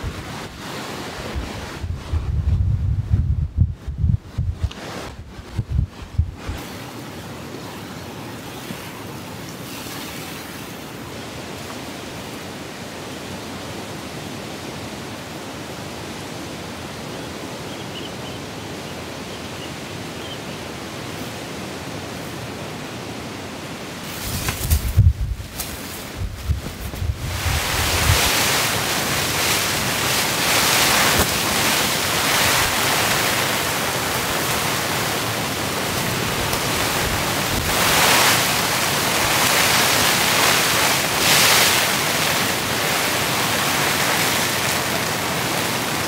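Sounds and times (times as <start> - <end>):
wind buffeting microphone: 0.0 - 6.6, 24.1 - 46.0
heavy rain hissing: 20.8 - 46.0.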